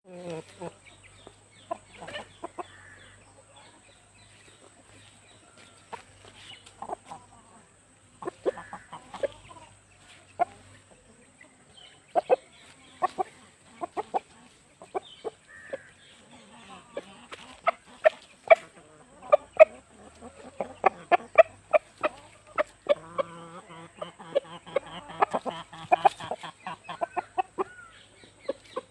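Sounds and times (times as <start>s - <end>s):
chickens clucking: 0.0s - 28.9s.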